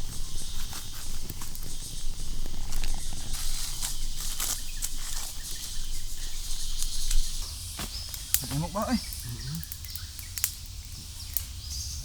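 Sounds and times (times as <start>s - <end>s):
footsteps in dry leaves: 0.0s - 9.5s
twigs snapping: 0.0s - 11.7s
insects hissing: 0.0s - 12.0s.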